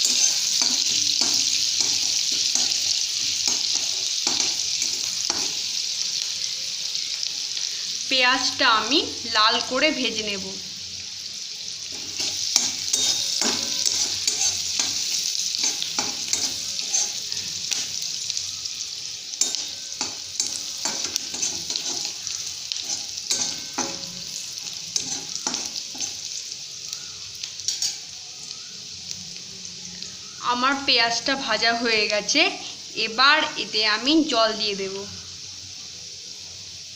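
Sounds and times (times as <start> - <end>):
spatula scraping and knocking pan: 0.0 - 5.6, 11.9 - 18.0, 19.4 - 26.2
vegetables sizzling in oil: 0.0 - 36.9.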